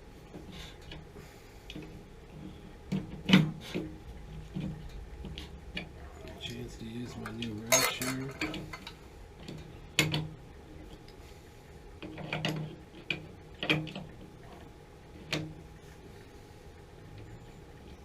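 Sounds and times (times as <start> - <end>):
wrench clinking on metal fitting: 7.7 - 8.6.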